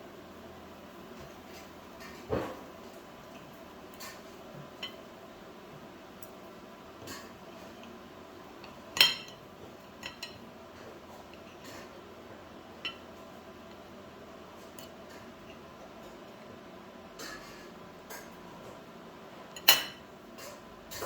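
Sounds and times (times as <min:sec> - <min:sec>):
utensils clinking against dishes: 0:08.6 - 0:10.5, 0:12.8 - 0:13.1, 0:19.5 - 0:21.0.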